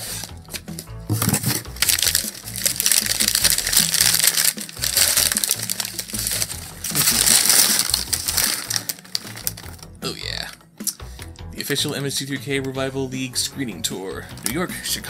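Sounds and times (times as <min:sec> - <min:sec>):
packing material crinkling: 0:00.0 - 0:10.6
background music with bass line: 0:00.0 - 0:15.0.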